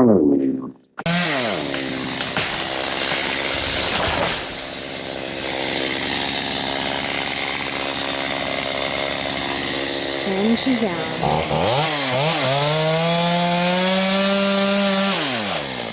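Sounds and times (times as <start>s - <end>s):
chainsaw cutting wood: 1.0s - 15.9s.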